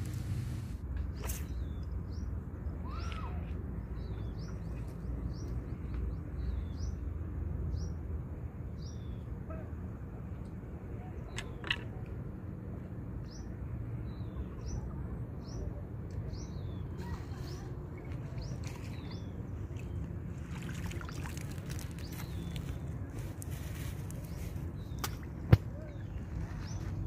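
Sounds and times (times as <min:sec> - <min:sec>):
steady low rumble: 0:00.0 - 0:02.8.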